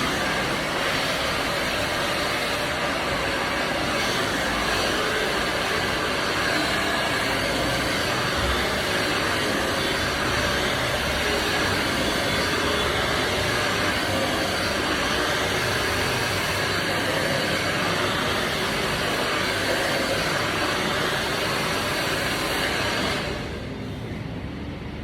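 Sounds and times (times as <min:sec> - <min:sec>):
hair dryer blowing: 0:00.0 - 0:24.1.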